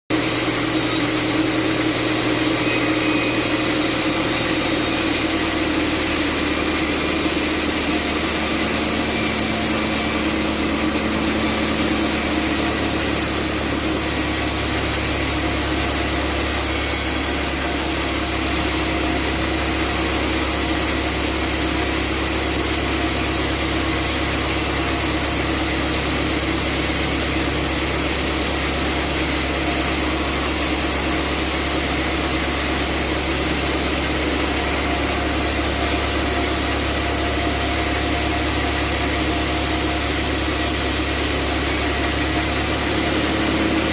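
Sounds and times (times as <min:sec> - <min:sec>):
band saw cutting log: 0:00.1 - 0:43.9.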